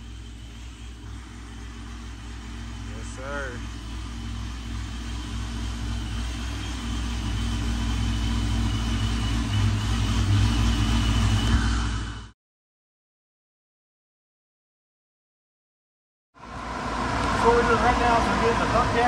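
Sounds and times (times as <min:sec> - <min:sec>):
car engine idling: 0:00.0 - 0:12.3, 0:16.4 - 0:19.0
thin high whine: 0:00.0 - 0:12.4.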